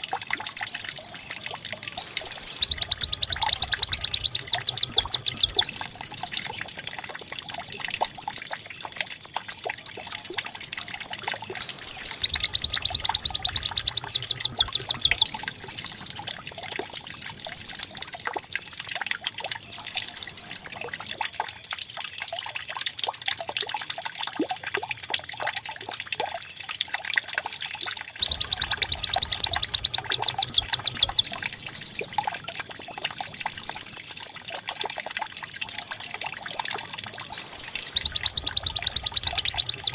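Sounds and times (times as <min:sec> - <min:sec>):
songbird trills and whistles: 0:00.0 - 0:01.4, 0:02.0 - 0:20.8, 0:28.2 - 0:39.9.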